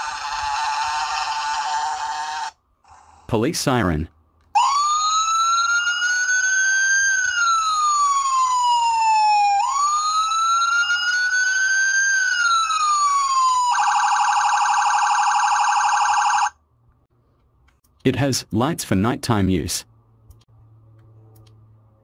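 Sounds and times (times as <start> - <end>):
electronic horn siren wail: 4.6 - 16.5.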